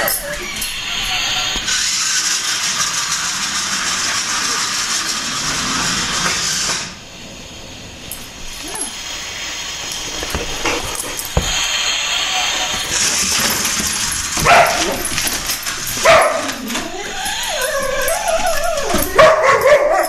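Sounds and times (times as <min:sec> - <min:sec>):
scraping and rustling: 0:08.4 - 0:19.8
dog whining and yipping: 0:14.4 - 0:20.0.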